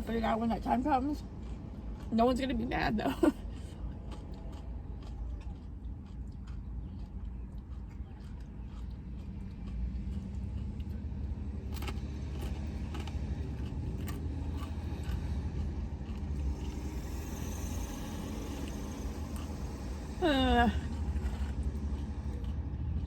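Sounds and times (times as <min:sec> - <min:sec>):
car engine running: 0:07.2 - 0:23.0.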